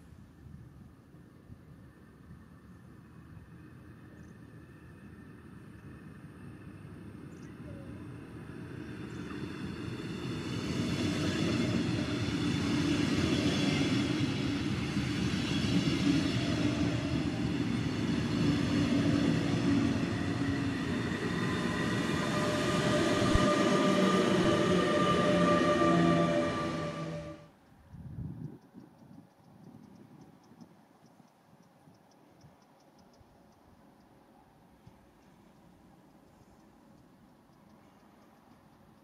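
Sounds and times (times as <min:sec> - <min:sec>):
train wheels rumbling on track: 0:01.1 - 0:27.6.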